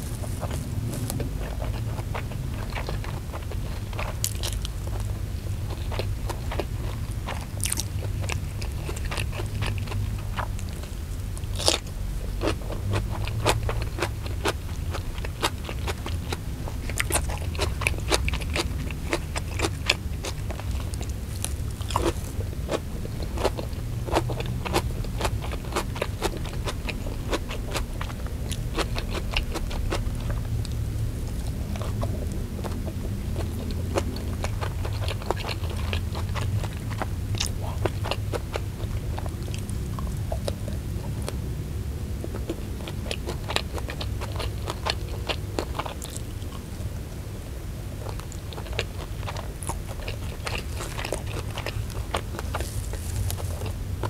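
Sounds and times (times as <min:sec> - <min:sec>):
steady low hum: 0:00.0 - 0:54.0
wet chewing sounds: 0:00.0 - 0:54.0.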